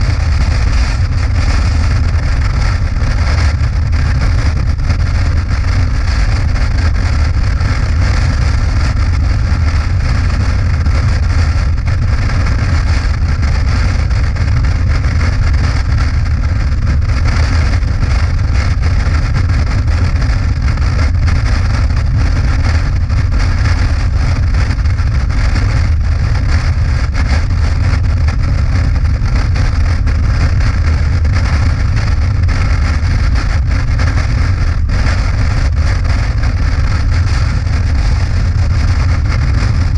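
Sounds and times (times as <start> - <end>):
road noise rushing: 0.0 - 19.2
motorcycle engine rumble: 0.0 - 39.9.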